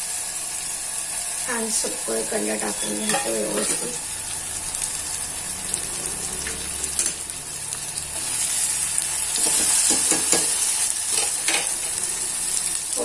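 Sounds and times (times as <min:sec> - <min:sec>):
food sizzling in oil: 0:00.0 - 0:13.0
spoon scraping a pan: 0:02.5 - 0:12.8.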